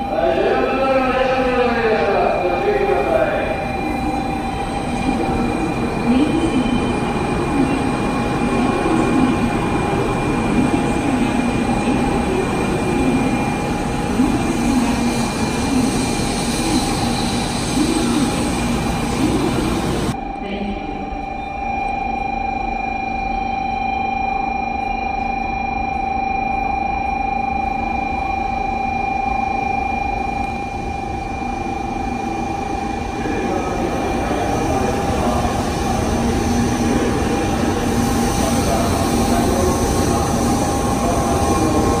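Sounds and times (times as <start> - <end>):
train rumble: 0.0 - 20.2, 30.5 - 42.0.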